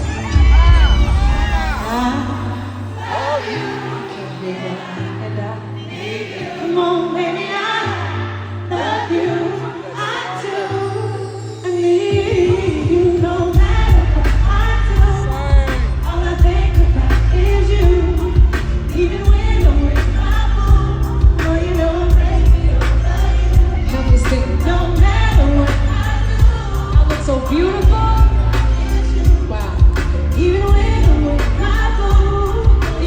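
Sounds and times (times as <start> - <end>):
heavy bass line: 0.0 - 2.7, 13.6 - 33.0
woman singing: 0.0 - 33.0
band with steady drum beat: 12.3 - 33.0.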